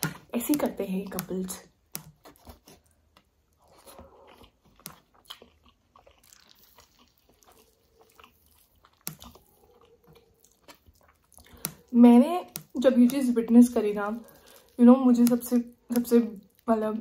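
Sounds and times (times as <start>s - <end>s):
food being chewed: 0.0s - 16.7s
wet mouth clicks: 8.2s - 13.2s.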